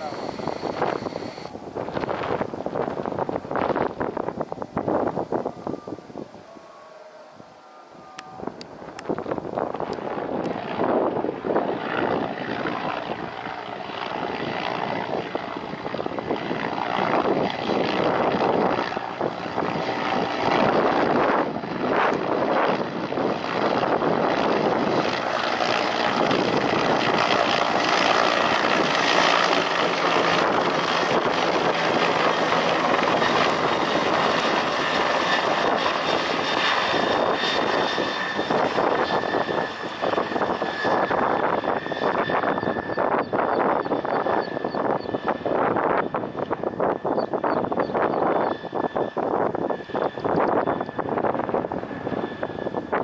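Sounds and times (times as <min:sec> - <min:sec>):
faint high whine: 0:00.0 - 0:01.7, 0:04.8 - 0:09.1
aircraft engine noise: 0:00.0 - 0:53.0.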